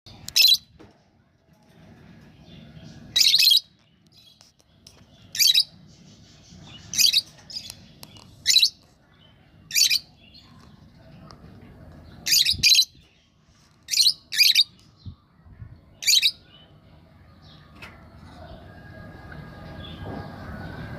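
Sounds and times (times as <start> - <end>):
soft bird chattering: 3.2 - 11.4
lovebirds screeching: 5.2 - 8.8.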